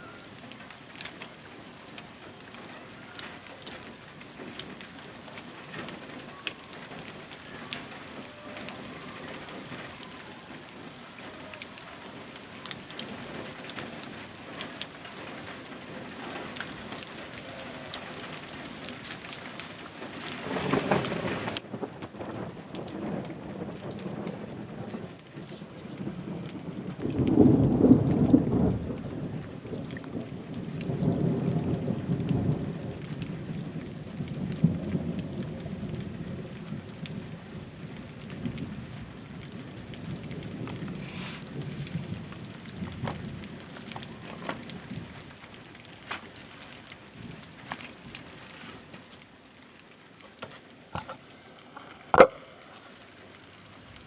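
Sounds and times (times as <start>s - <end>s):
rain: 0.0s - 54.0s
rolling thunder: 25.9s - 29.7s
water drips: 39.4s - 54.0s.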